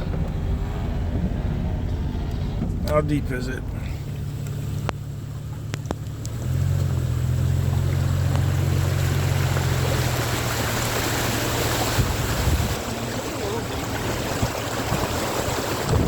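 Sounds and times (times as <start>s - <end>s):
vehicle engine running: 0.0s - 16.0s
rushing water spray: 4.0s - 16.0s.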